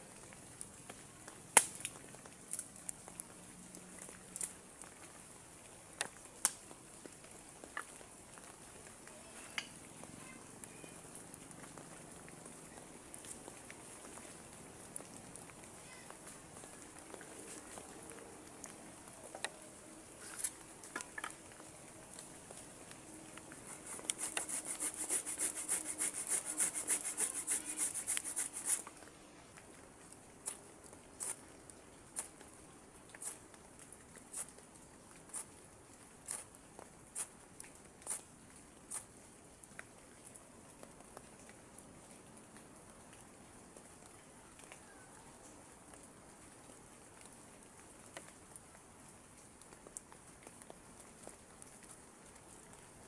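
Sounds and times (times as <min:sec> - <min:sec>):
rain hissing: 0:13.0 - 0:29.4
hand saw cutting wood: 0:23.5 - 0:28.9.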